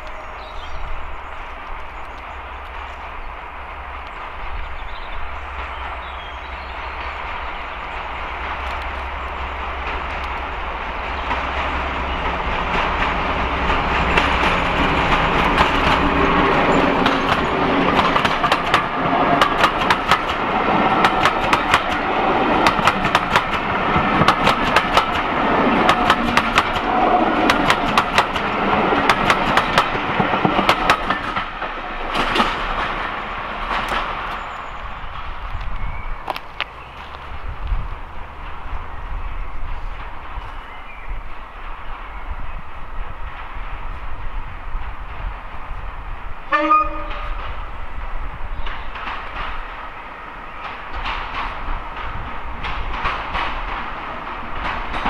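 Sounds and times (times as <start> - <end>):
locomotive engine hum: 0.0 - 55.0
wheels clattering over rail joints: 7.9 - 38.8, 50.5 - 55.0.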